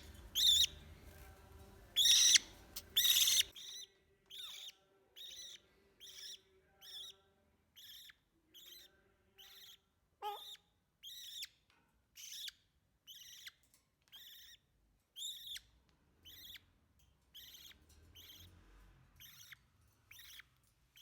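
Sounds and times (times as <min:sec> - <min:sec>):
parrot squawking: 0:02.0 - 0:07.1, 0:07.8 - 0:11.5.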